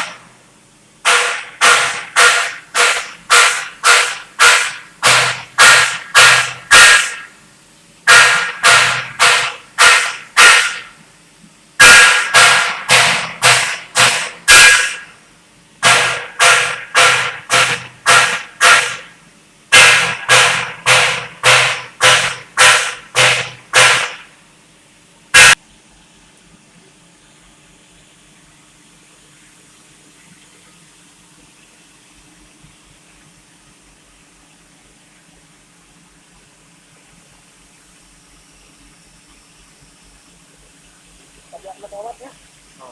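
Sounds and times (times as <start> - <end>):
welding arc hissing: 1.1 - 7.3, 8.1 - 10.9, 15.8 - 19.1, 19.7 - 24.3.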